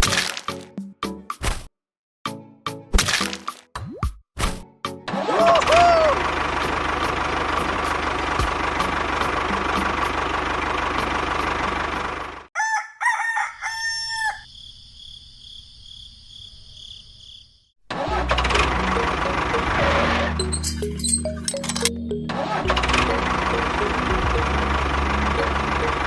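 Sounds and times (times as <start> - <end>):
loud running noise with ticking: 6.2 - 12.4, 22.7 - 26.0
rooster crowing: 12.6 - 14.6.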